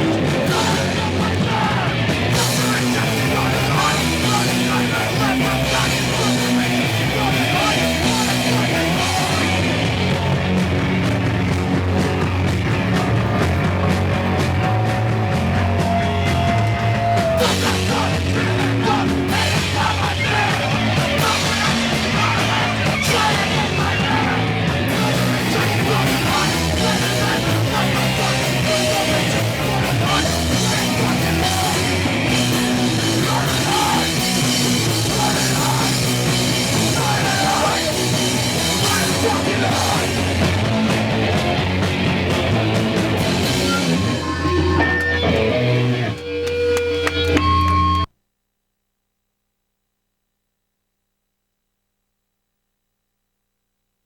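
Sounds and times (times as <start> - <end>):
shouted vocals: 0.0 - 11.1, 12.7 - 41.9
punk band playing live: 0.0 - 48.1.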